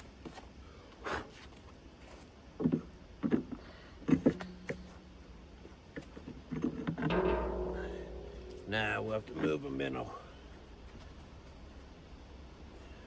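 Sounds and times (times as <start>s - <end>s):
dull metal knocks and clunks: 4.1s - 9.9s
short metal ringing tone: 7.1s - 10.1s.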